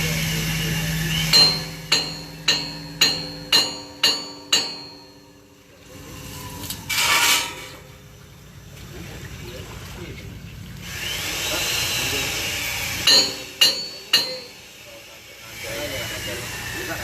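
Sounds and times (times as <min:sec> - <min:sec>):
steady low hum: 0:00.0 - 0:17.0
hammer striking metal: 0:01.1 - 0:05.7, 0:13.0 - 0:14.7.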